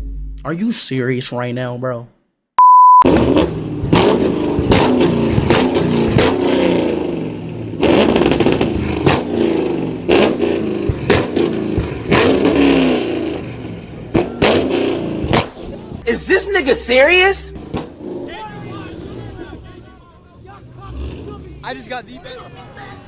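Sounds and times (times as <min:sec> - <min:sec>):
car engine revving: 0:03.0 - 0:23.0
exhaust pops and bangs: 0:03.1 - 0:16.0, 0:17.6 - 0:18.5.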